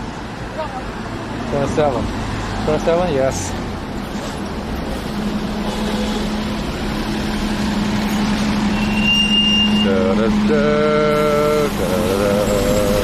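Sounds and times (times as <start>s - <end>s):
road or rail rumble: 0.0s - 13.0s
vehicle motor hum: 0.0s - 13.0s
brief high tone: 8.7s - 10.1s.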